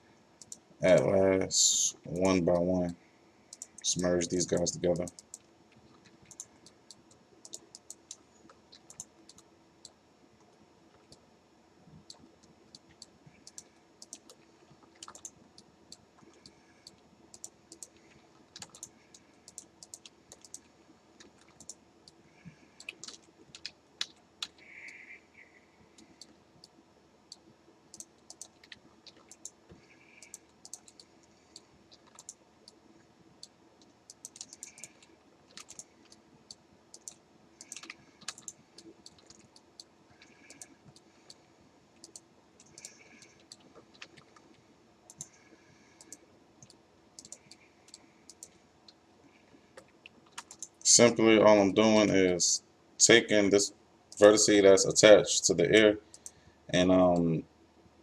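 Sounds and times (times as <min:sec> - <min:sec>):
faint steady hum: 0:00.0 - 0:58.0
mouse and keyboard clicking: 0:03.5 - 0:10.0, 0:12.0 - 0:22.2, 0:22.8 - 0:25.0, 0:26.0 - 0:32.8, 0:33.8 - 0:41.4, 0:42.0 - 0:45.4, 0:46.0 - 0:48.6, 0:49.7 - 0:50.8.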